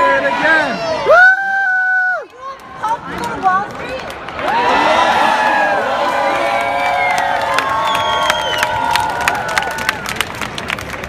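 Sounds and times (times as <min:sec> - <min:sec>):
crowd shouts and whoops: 0:00.0 - 0:02.6, 0:04.4 - 0:10.3
people clapping: 0:02.0 - 0:11.0.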